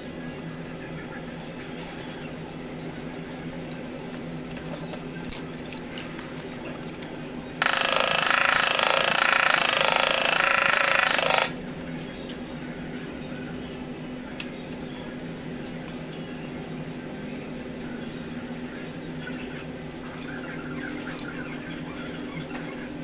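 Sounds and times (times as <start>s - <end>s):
power tool buzzing: 7.6s - 11.6s.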